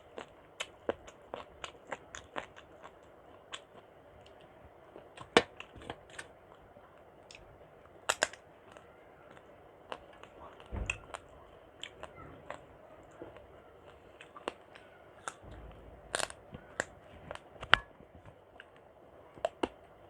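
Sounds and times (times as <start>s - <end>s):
chewing food: 0.0s - 20.0s
low thump: 10.7s - 11.2s, 15.4s - 16.8s.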